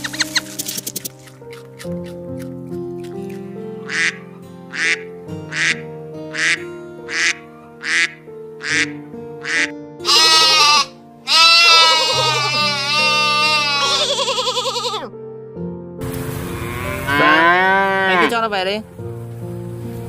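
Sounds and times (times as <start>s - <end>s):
background music: 0.0s - 20.0s
duck quacking: 3.9s - 15.1s
goat bleating: 10.0s - 15.1s.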